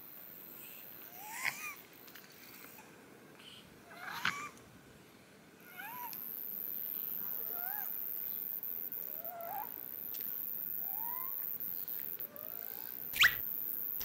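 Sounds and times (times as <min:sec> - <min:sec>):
bird chirping: 0:12.4 - 0:13.4.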